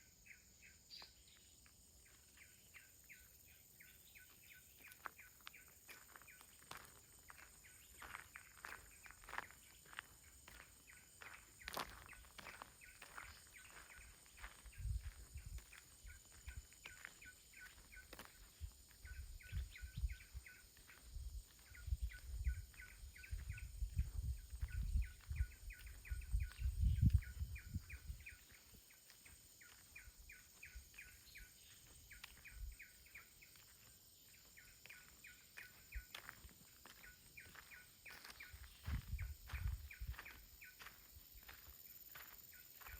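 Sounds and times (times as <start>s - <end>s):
small bird chirping: 0.0s - 42.9s
wind buffeting microphone: 14.4s - 16.7s, 18.6s - 28.4s, 38.6s - 40.5s.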